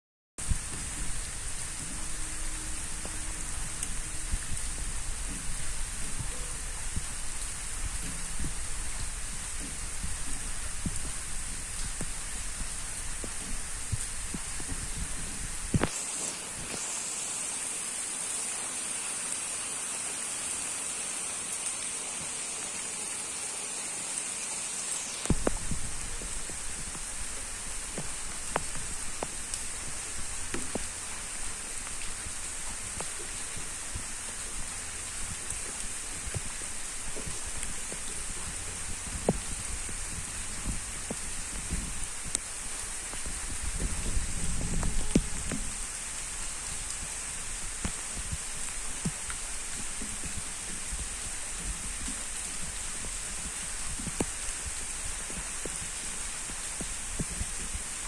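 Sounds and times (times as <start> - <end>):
low rumble: 0.4 - 15.8
steady rain: 0.4 - 58.0.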